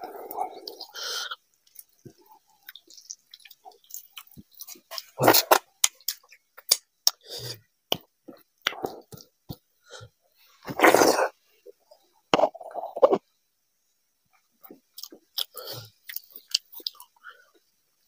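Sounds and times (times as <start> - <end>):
fingers squishing food: 1.6 - 7.2
wet chewing and lip smacking: 1.6 - 7.2.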